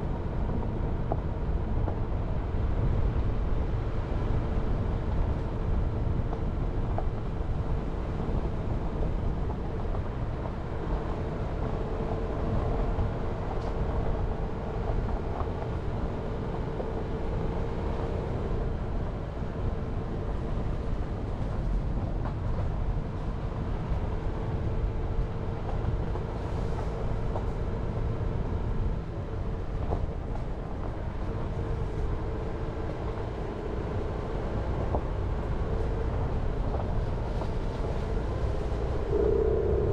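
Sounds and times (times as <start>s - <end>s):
engine and road noise: 0.0s - 39.9s
faint steady hum: 30.9s - 39.9s.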